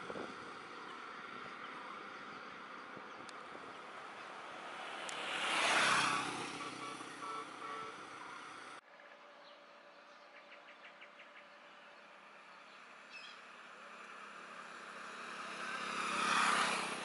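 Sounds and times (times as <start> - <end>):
vehicle passing by: 0.0 - 10.1, 11.6 - 17.0.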